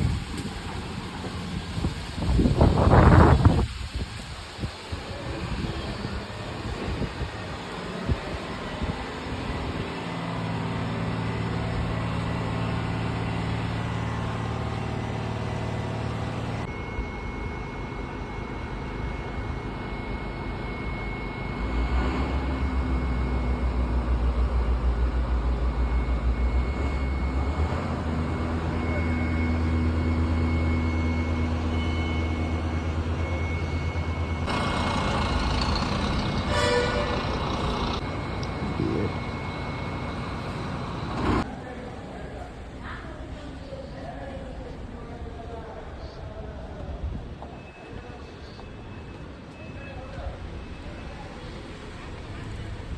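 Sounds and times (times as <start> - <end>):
diesel bus engines rumbling: 0.0 - 16.7, 21.6 - 42.8, 50.3 - 52.9.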